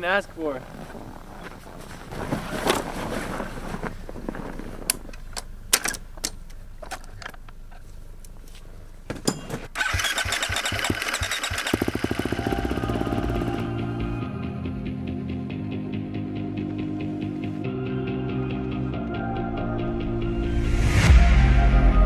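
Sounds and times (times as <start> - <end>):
dirt bike engine starting and idling: 9.6 - 14.2.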